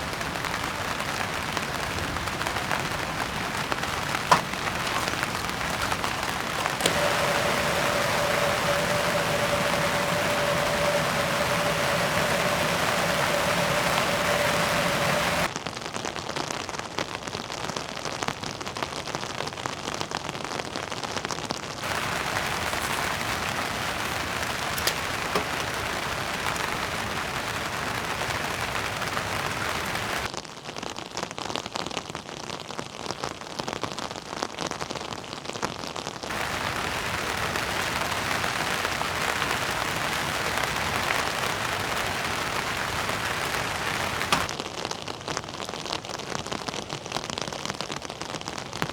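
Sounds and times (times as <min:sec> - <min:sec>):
heavy rain falling: 0:00.0 - 0:15.5, 0:21.8 - 0:30.3, 0:36.3 - 0:44.6
steady humming tone: 0:04.1 - 0:15.5.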